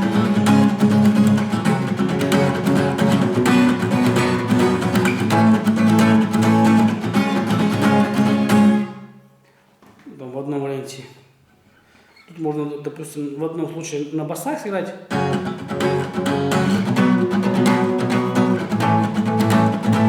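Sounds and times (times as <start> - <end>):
guitar strummed briskly: 0.0 - 9.1, 15.1 - 20.0.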